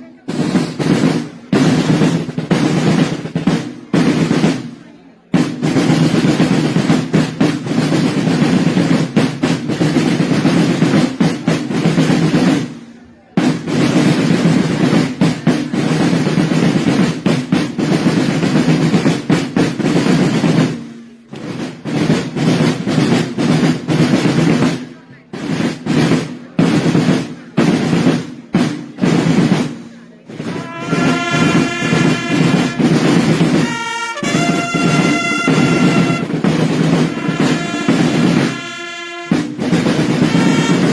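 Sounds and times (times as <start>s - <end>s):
drums playing a roll: 0.0s - 40.9s
heavier drum strokes: 0.0s - 40.9s
trumpets holding long note: 30.5s - 33.0s, 33.6s - 36.4s, 37.0s - 39.4s, 40.2s - 40.9s.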